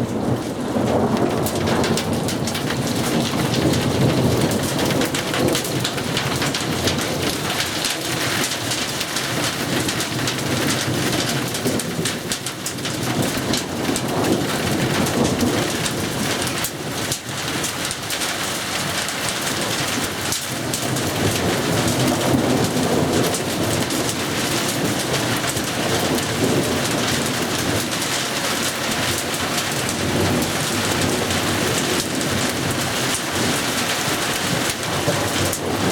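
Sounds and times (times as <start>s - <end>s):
thunder rumbling: 0.0s - 12.3s, 20.6s - 35.9s
heavy rain and hail pelting: 0.0s - 35.9s.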